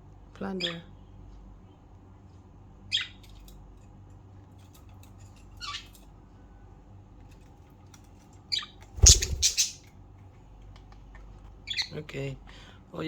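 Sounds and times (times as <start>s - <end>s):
budgerigars squawking: 9.0s - 9.8s.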